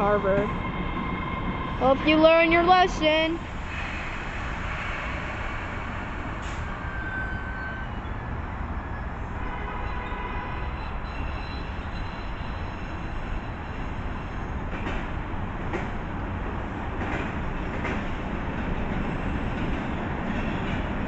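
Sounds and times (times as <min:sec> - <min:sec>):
train rumbling on tracks: 0:00.0 - 0:21.0
high-pitched wheel squeals: 0:06.4 - 0:09.1, 0:10.6 - 0:13.2.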